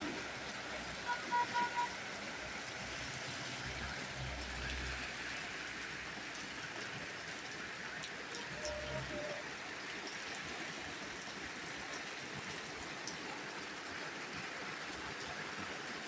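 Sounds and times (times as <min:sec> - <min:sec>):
rain falling: 0:00.0 - 0:16.0
short high-pitched tones: 0:08.4 - 0:09.4.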